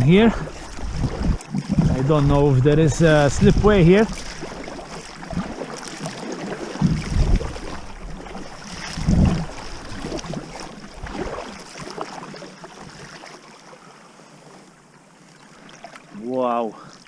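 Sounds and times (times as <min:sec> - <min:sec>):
low thumps: 0:00.0 - 0:04.4, 0:06.8 - 0:10.2
wind on microphone: 0:00.0 - 0:11.6
water lapping around kayak: 0:00.0 - 0:17.0.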